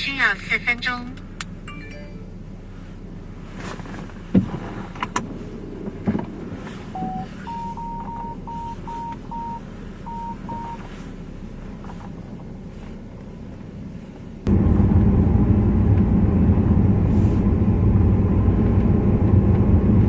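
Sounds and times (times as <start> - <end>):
vehicle engine running: 0.0 - 20.0
warning chime beeps: 1.7 - 2.4, 7.0 - 10.8.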